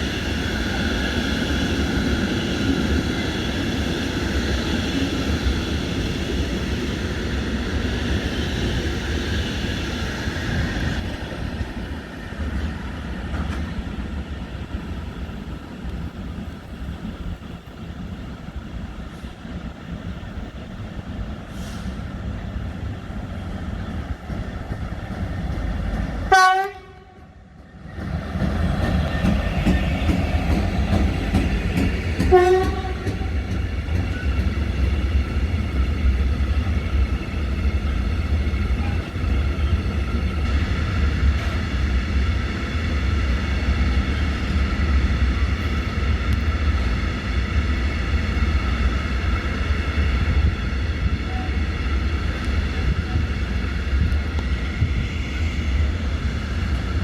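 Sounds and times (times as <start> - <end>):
train rumbling past: 0.0 - 57.0
train horn blasts: 26.3 - 27.3, 32.3 - 33.3.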